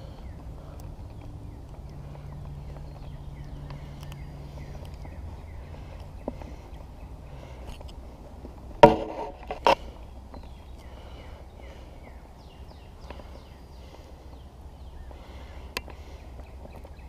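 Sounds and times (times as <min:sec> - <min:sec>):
bird chirping: 0:00.0 - 0:08.1, 0:09.8 - 0:17.0
low background rumble: 0:00.0 - 0:17.0
hollow knocks on hull: 0:08.8 - 0:09.4.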